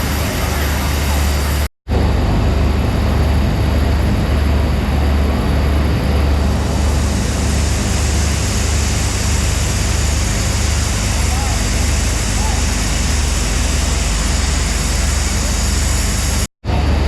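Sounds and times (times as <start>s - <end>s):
locomotive hiss: 0.0s - 1.7s, 5.4s - 16.5s
locomotive low rumble: 0.0s - 17.0s.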